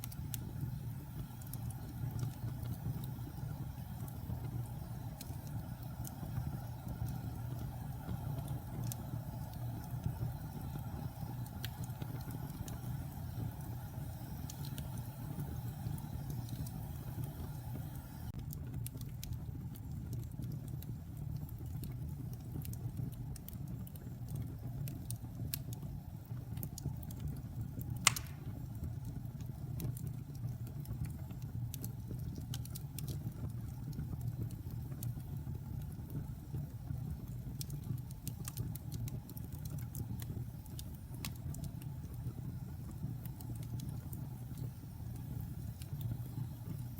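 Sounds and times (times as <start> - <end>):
wood fire crackling: 0.0 - 46.9
sharp pop of fire: 28.0 - 28.7.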